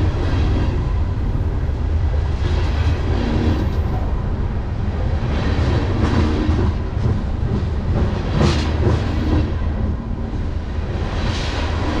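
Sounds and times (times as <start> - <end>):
steel wheels rumbling on rails: 0.0 - 12.0.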